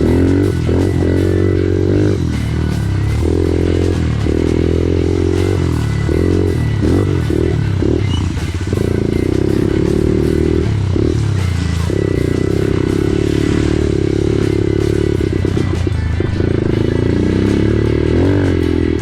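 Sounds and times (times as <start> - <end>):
off-road vehicle engine revving: 0.0 - 19.0.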